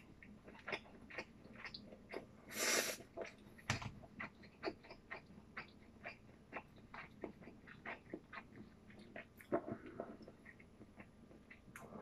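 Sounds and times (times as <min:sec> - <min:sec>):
wet chewing mouth clicks: 0:00.0 - 0:12.0
loud breath through nose: 0:02.5 - 0:03.0.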